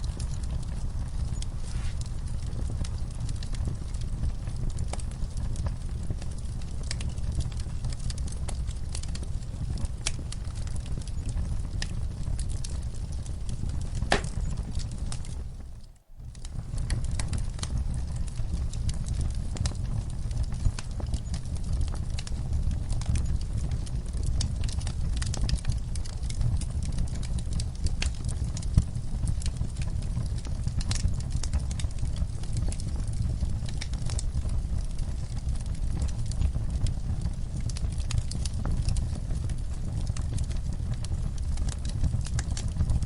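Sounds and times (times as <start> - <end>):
low rumble of flames: 0.0 - 43.0
wood fire crackling and popping: 0.0 - 43.0.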